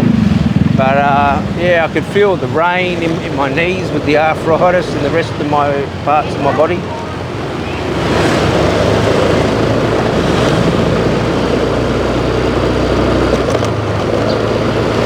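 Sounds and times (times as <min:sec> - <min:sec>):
wind rush: 0:00.0 - 0:12.0
motorbike engine hum: 0:00.0 - 0:15.0
tyre noise: 0:01.4 - 0:15.0.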